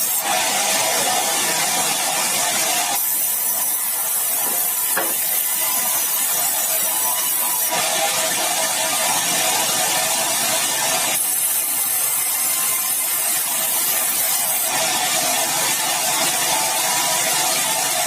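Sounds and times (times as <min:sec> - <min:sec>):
saw cutting through timber: 0:00.0 - 0:18.0.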